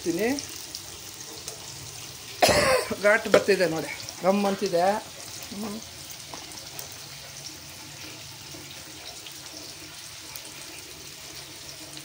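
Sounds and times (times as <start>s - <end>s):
eggplant sizzling in a pan: 0.0s - 12.0s.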